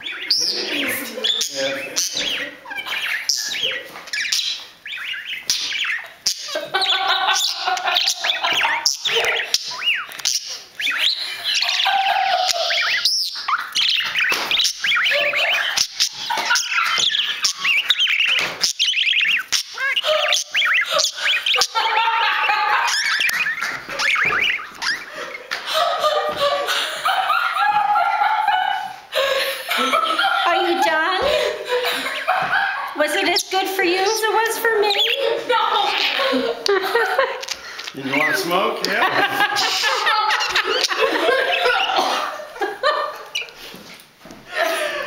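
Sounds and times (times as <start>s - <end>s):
parakeet warbling and chattering: 0.0s - 22.0s, 22.7s - 25.2s, 33.2s - 36.5s, 38.0s - 38.6s.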